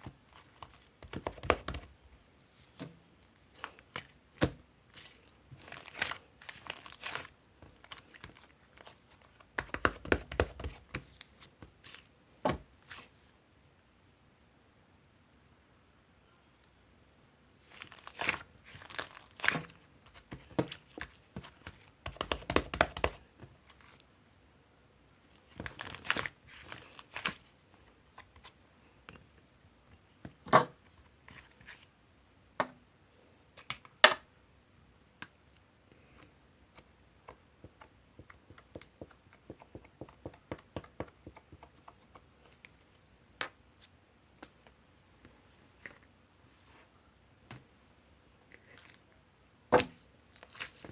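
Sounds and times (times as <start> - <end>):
crinkling and tearing handling noises: 2.6 - 9.5, 17.6 - 21.9, 25.4 - 28.6, 50.3 - 50.9.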